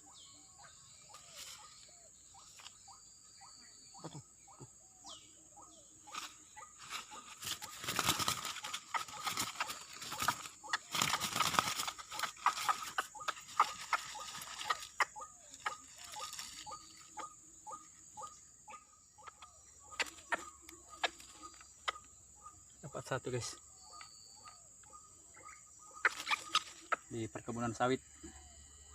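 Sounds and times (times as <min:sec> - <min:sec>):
crickets chirping: 0:00.0 - 0:28.9.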